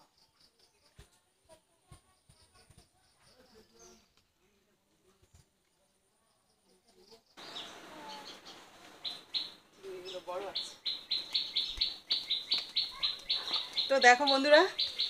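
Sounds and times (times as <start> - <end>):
faint voices: 0.0 - 11.8
bird chirping: 5.2 - 15.0.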